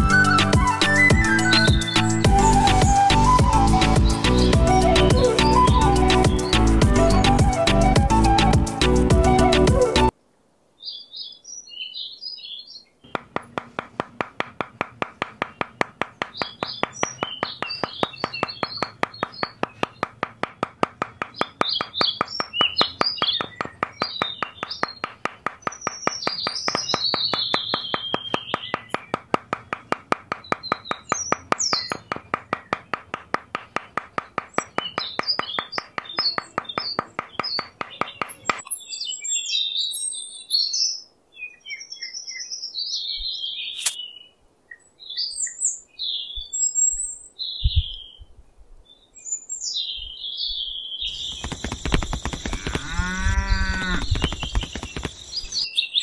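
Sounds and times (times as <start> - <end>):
small birds chirping: 0.0 - 8.4, 10.8 - 56.0
fast even ticking: 13.1 - 38.4, 51.1 - 55.6.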